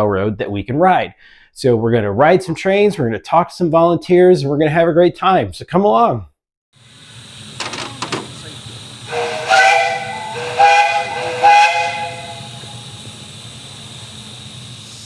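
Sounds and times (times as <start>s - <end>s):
steam hissing: 6.8s - 15.0s
steam whistle blowing: 6.8s - 15.0s.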